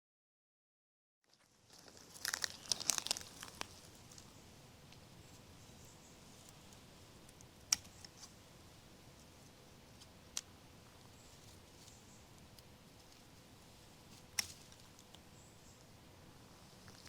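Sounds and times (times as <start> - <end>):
herb stems snapping: 1.7 - 4.3, 7.4 - 8.2, 14.2 - 15.2.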